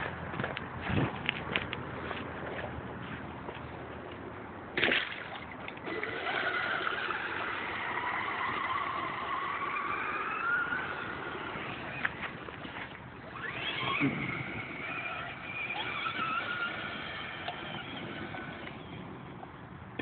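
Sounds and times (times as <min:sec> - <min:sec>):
electric motor whine: 0:05.9 - 0:19.1.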